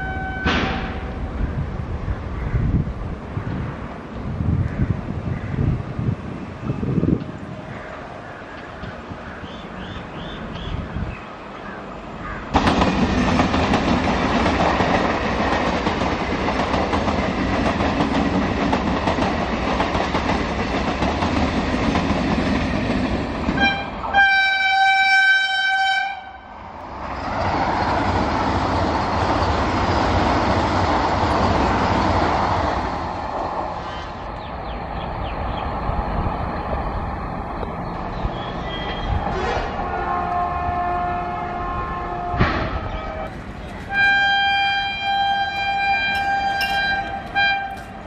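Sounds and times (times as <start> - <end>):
long high train horn: 0.0 - 1.3, 23.6 - 26.6, 39.3 - 43.3, 43.9 - 48.0
train wheels rushing on rail: 0.0 - 24.8, 26.6 - 48.0.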